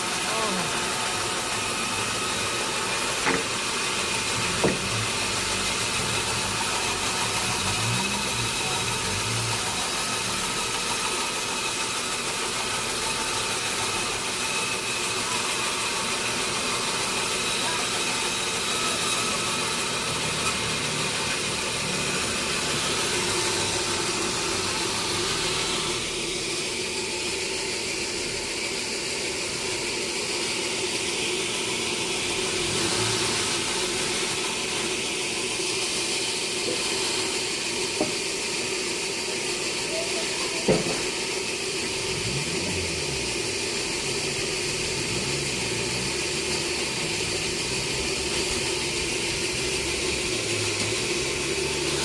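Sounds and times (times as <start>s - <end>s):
sawmill machinery running: 0.0s - 52.0s
sharp knocks: 3.2s - 3.6s.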